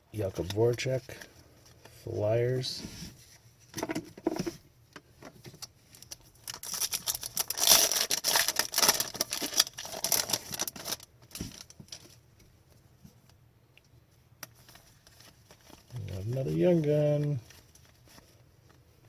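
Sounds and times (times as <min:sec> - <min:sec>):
packaging crinkling and rustling: 0:05.4 - 0:12.2, 0:14.4 - 0:19.0.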